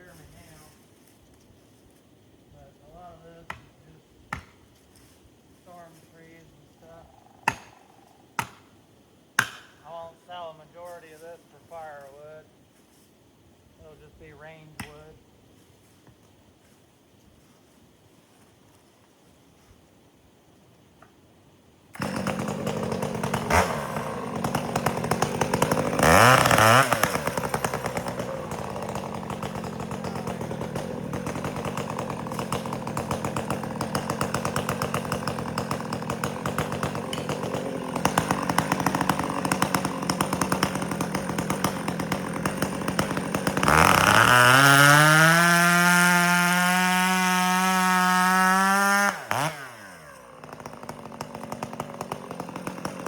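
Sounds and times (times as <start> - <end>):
two-stroke chainsaw idling and revving: 22.0 - 53.0.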